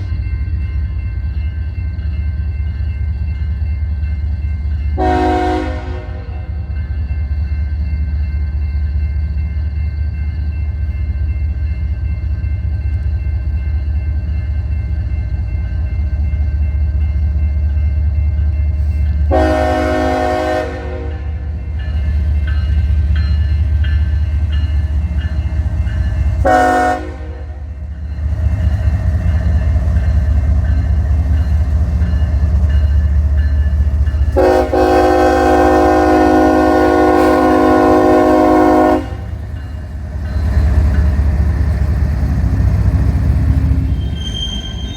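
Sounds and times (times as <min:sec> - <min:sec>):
locomotive engine rumble: 0:00.0 - 0:44.9
locomotive air horn: 0:05.0 - 0:06.4, 0:19.3 - 0:21.4, 0:26.4 - 0:27.6, 0:34.4 - 0:39.3.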